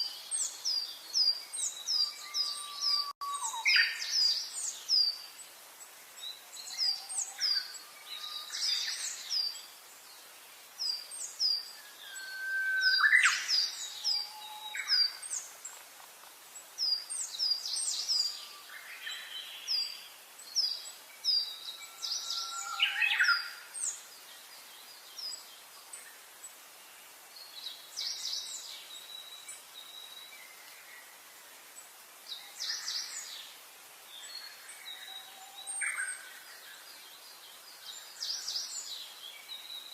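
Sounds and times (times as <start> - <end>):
songbirds singing and chirping: 0.0 - 39.9
lower whistled bird note: 2.0 - 3.9, 11.8 - 15.2, 21.8 - 23.5.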